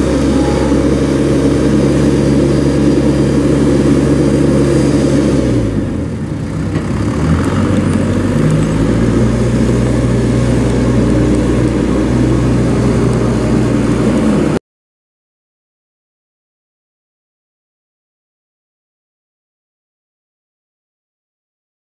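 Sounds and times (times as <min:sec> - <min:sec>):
backhoe diesel engine running: 0:00.0 - 0:14.6.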